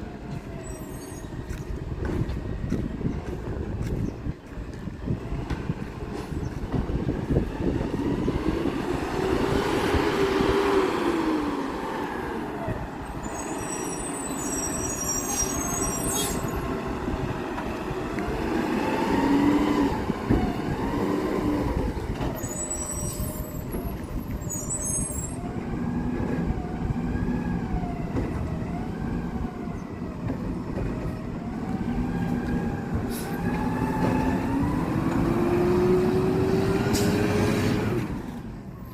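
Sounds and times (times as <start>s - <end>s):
high-pitched squeals: 13.1s - 16.7s, 22.4s - 23.8s, 24.4s - 25.4s.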